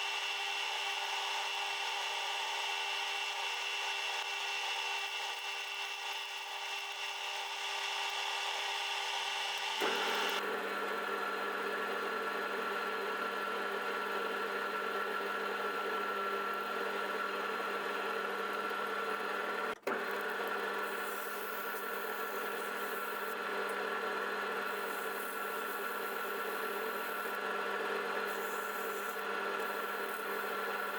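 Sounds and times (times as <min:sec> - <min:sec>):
power tool motor whining: 0:04.3 - 0:10.4.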